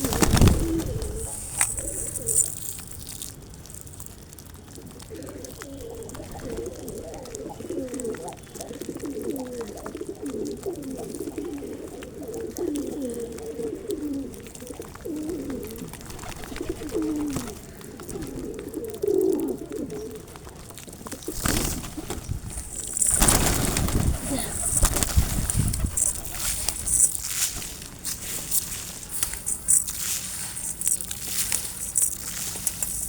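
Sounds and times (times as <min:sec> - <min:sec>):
pigeons cooing: 0:00.0 - 0:02.7, 0:04.8 - 0:33.0
loud rustling: 0:21.3 - 0:33.0.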